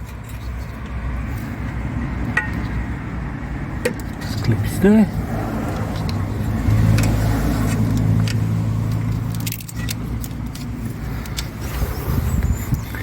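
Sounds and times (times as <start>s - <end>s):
light metallic clicks and rattles: 6.9s - 11.6s.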